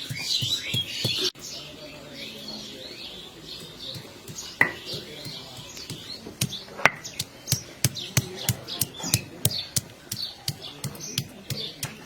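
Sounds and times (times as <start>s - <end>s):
chopping knocks on hard surface: 4.6s - 5.1s.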